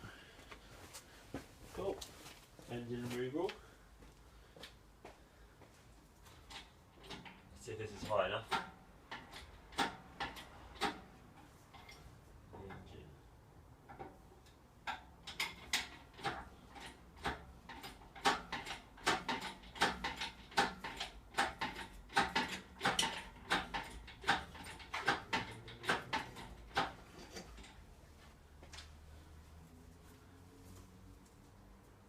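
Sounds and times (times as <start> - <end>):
irregular clicks and knocks: 6.3 - 12.9, 13.8 - 27.9.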